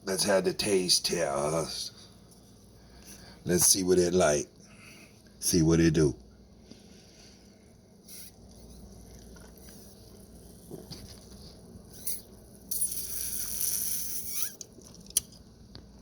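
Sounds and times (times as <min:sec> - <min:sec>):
slurping through a straw: 0:08.1 - 0:15.1.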